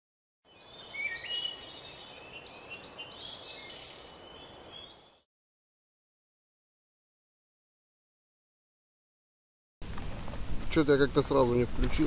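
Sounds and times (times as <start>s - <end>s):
outdoor background hiss: 0.5s - 5.2s
songbirds singing and chirping: 0.5s - 5.2s.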